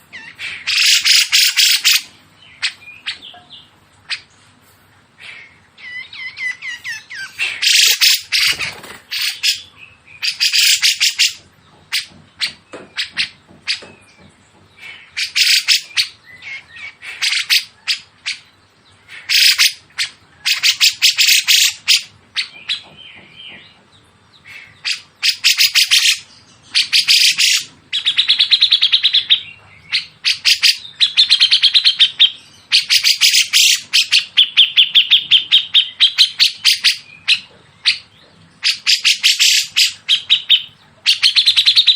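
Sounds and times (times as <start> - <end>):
songbird harsh chattering: 0.0 - 3.5, 5.2 - 13.9, 14.8 - 18.5, 19.1 - 22.9, 24.4 - 41.9
songbird trilling: 14.8 - 18.5, 24.4 - 41.9.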